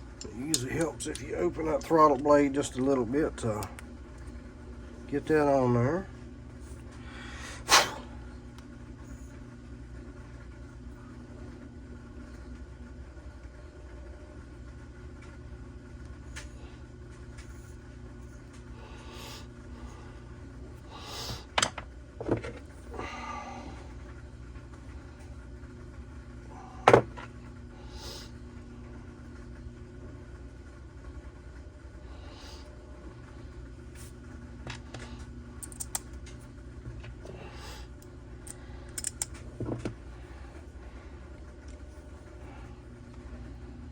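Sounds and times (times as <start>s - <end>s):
steady low hum: 0.0s - 43.9s
clicks and knocks of metal parts: 35.6s - 36.1s, 38.9s - 39.9s.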